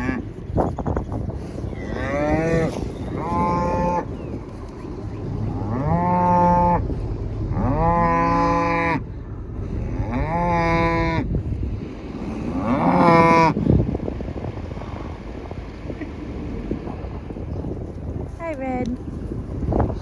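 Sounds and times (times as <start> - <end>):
cows mooing: 0.0 - 0.6, 1.6 - 13.6.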